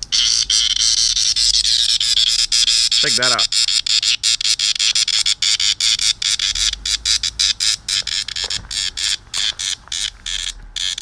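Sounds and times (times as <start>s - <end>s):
cicada buzzing distress call: 0.0s - 11.0s.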